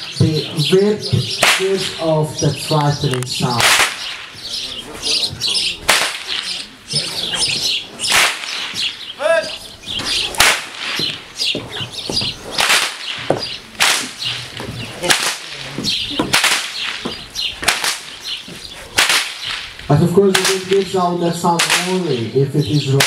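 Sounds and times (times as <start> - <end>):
whips cracking: 1.3 - 2.1, 3.6 - 4.4, 5.8 - 6.7, 8.0 - 8.9, 10.2 - 11.2, 12.5 - 20.9, 21.6 - 22.4.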